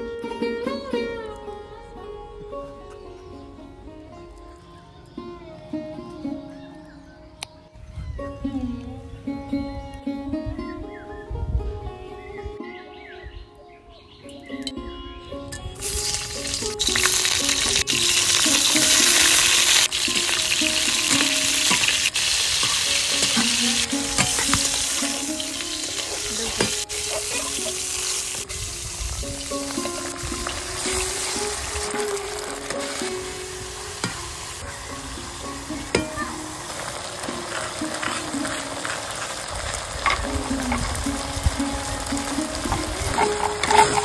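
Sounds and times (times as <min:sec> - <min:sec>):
gourds sizzling in hot oil: 0:15.8 - 0:44.0.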